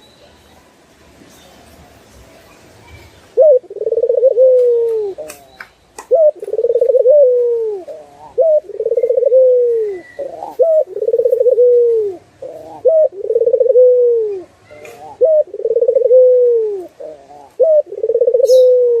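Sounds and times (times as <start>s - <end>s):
dove cooing: 3.4s - 5.4s, 6.0s - 19.0s.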